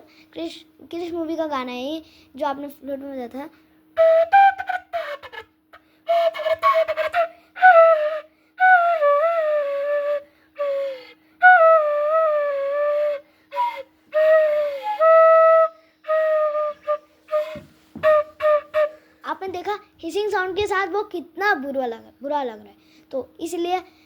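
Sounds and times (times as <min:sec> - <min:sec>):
breathy flute melody: 0:04.0 - 0:19.3.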